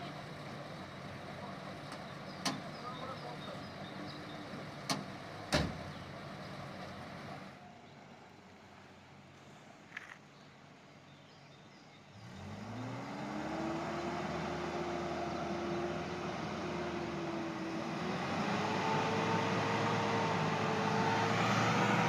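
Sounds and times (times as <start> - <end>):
engine starting and revving: 12.2 - 22.0.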